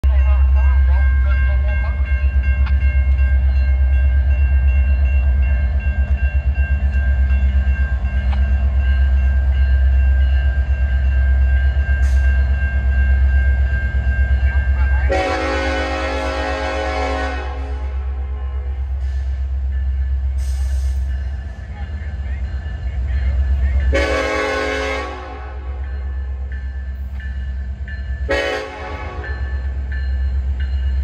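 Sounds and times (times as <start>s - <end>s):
freight train rumbling: 0.0s - 31.0s
locomotive air horn: 15.1s - 19.2s, 23.9s - 25.8s, 28.3s - 29.3s.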